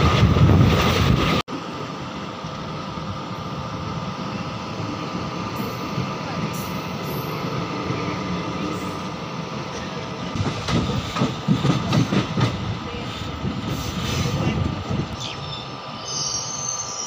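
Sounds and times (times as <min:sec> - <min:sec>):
train wheels clattering over rails: 0:10.3 - 0:15.1.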